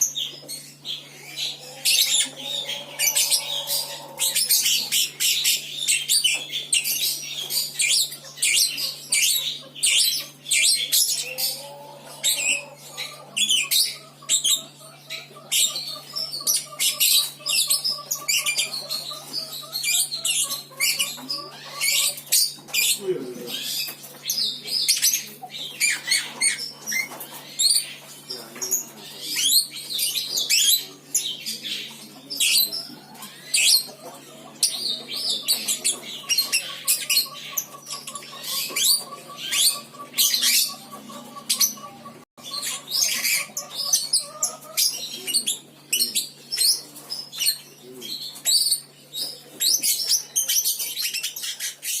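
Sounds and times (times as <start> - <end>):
low electrical hum: 0.0 - 38.4
bird chirping and trilling: 0.0 - 52.0.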